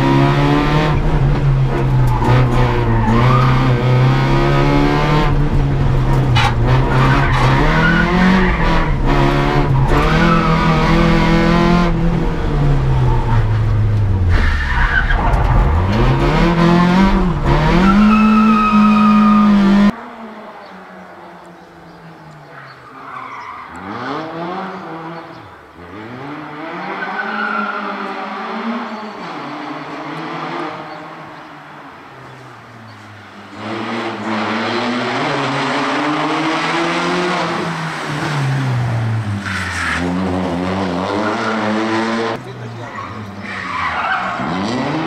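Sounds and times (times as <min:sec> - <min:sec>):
car engine revving: 0:00.0 - 0:20.0, 0:33.4 - 0:45.0.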